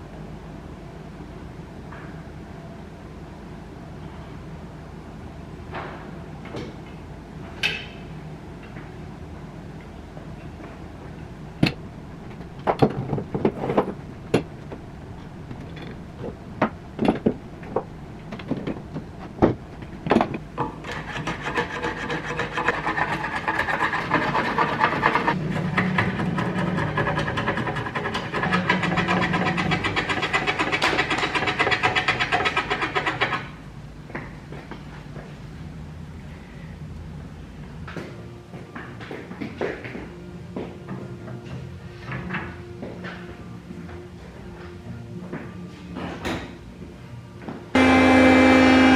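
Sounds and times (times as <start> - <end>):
rasp scraping wood: 11.7 - 33.5.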